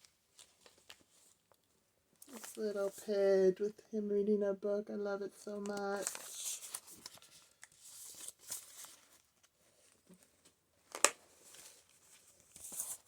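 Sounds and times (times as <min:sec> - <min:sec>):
paper pages rustling: 0:00.0 - 0:03.0, 0:05.6 - 0:13.0.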